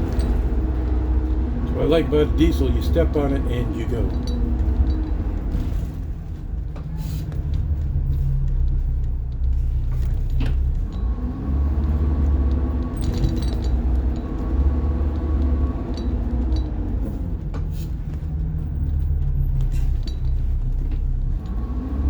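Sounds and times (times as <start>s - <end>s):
diesel bus engine rumble: 0.0s - 22.0s.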